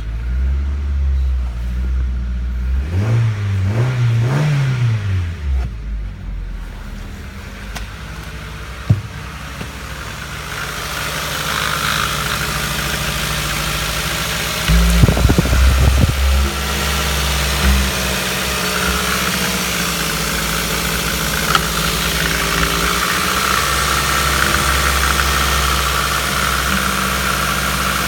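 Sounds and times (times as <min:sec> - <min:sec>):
car engine idling: 0:05.3 - 0:28.0
low thumps: 0:08.8 - 0:09.8, 0:14.6 - 0:23.8
high whine: 0:12.4 - 0:26.8.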